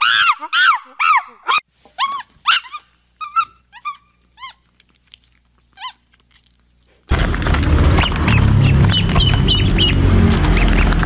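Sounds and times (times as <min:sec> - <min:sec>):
macaque high-pitched cries: 0:00.0 - 0:04.7.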